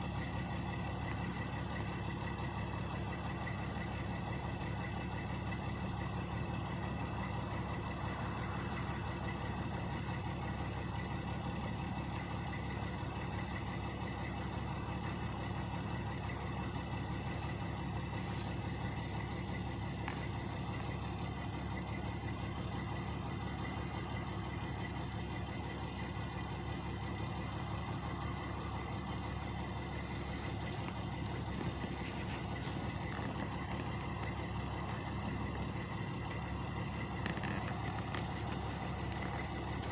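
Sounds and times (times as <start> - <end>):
truck engines idling: 0.0 - 39.9.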